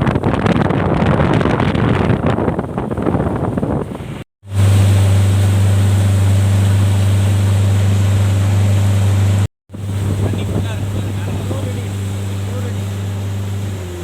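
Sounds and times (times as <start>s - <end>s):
wind and water rushing: 0.0s - 14.0s
boat engine low drone: 3.9s - 14.0s.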